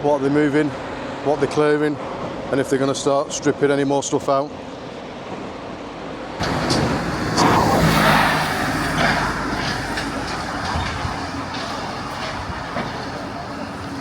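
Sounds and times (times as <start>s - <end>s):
clanks of metal and concrete: 6.4s - 14.0s
diesel engine running: 6.4s - 14.0s.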